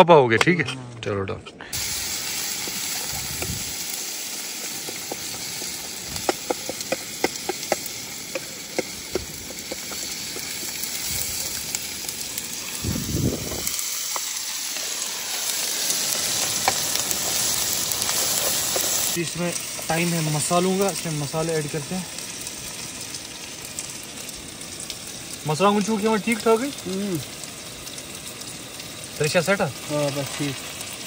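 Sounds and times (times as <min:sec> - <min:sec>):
vegetables sizzling in oil: 0:01.7 - 0:31.0
spatula tapping and scraping pan: 0:04.8 - 0:10.9.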